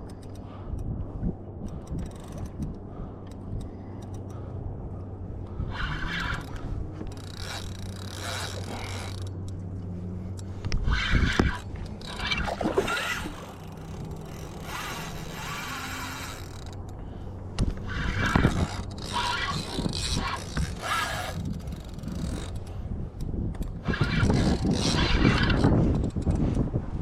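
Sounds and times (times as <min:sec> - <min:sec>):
steady low hum: 0:00.0 - 0:23.9
fishing gear scraping and rustling: 0:05.0 - 0:22.9, 0:23.6 - 0:26.3.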